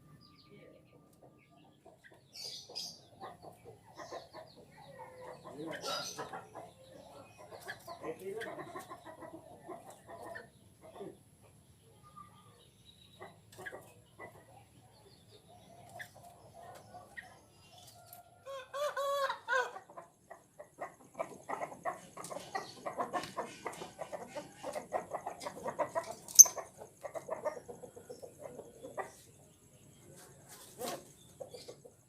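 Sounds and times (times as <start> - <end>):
caged birds calling: 0.0 - 32.0.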